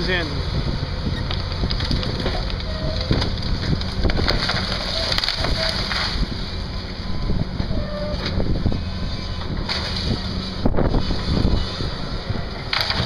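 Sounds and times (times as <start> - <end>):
excavator engine running: 0.0 - 13.0
knocks and cracks: 1.3 - 6.2, 12.7 - 13.0.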